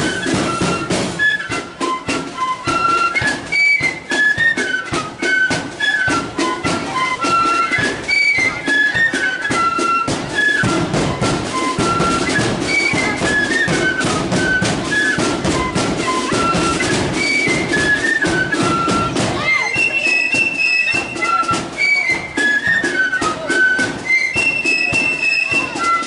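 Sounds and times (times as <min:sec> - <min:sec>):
flutes playing melody: 0:00.0 - 0:26.0
steady drumbeat: 0:00.0 - 0:26.0.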